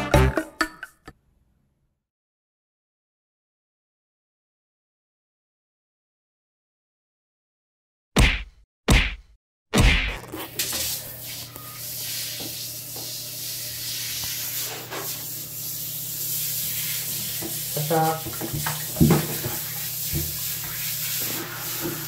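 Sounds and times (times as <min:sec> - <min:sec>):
water running from shower hose: 0:10.4 - 0:22.0.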